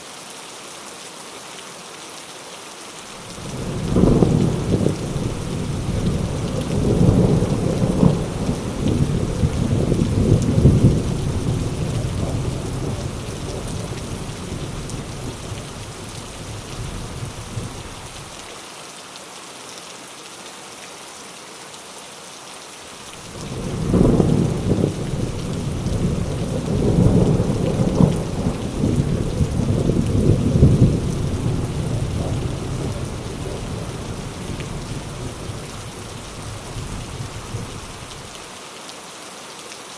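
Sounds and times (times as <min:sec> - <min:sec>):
heavy rain: 0:00.0 - 0:39.9
rolling thunder: 0:03.4 - 0:18.3, 0:23.3 - 0:38.3.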